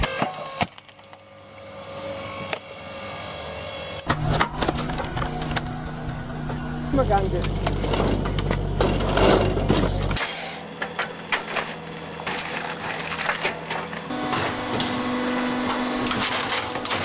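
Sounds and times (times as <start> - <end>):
machine hum: 5.8 - 10.2
wood cracking and snapping: 7.0 - 10.2.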